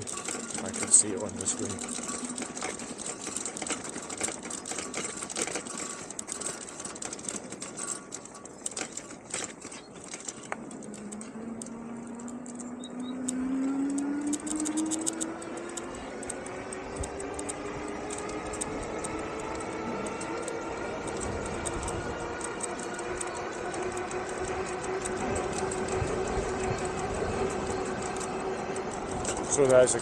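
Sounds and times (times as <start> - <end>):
electric motor whining: 10.5 - 30.0
wind noise: 13.7 - 29.5.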